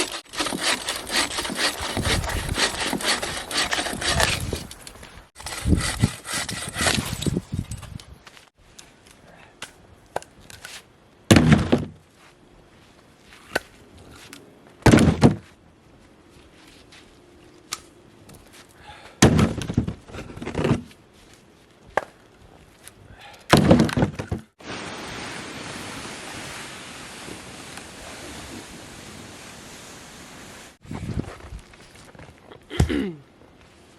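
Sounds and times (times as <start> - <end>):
wind noise: 1.4 - 8.3, 25.6 - 32.4
axe chopping firewood: 14.8 - 15.4, 23.3 - 24.5.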